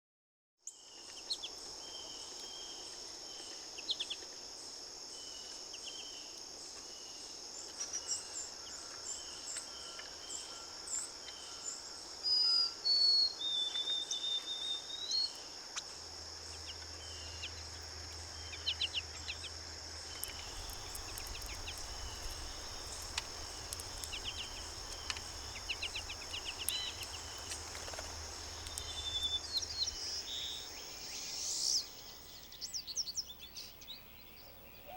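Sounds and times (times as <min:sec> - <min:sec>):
insects droning: 0:00.8 - 0:34.8
small birds chirping: 0:13.0 - 0:34.9
whistled bird call: 0:20.3 - 0:30.6.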